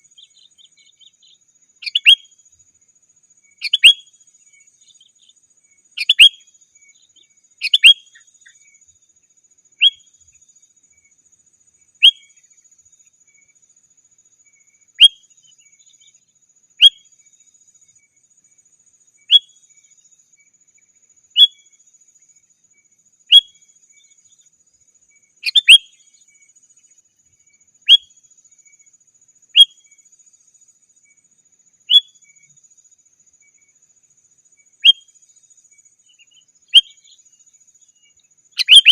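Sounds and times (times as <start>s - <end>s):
bird call notes: 1.8s - 2.3s, 25.4s - 25.9s, 38.6s - 38.9s.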